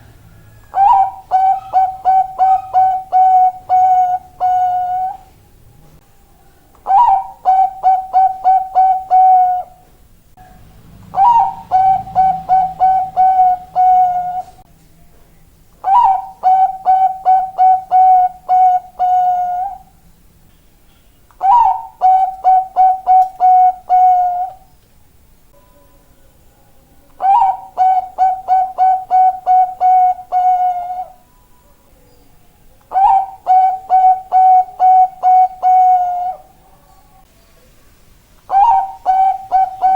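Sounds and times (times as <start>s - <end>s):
dove cooing: 0.0s - 5.3s, 6.8s - 9.9s, 11.0s - 14.6s, 15.8s - 20.0s, 21.4s - 24.7s, 27.2s - 31.2s, 32.9s - 36.8s, 38.5s - 39.9s.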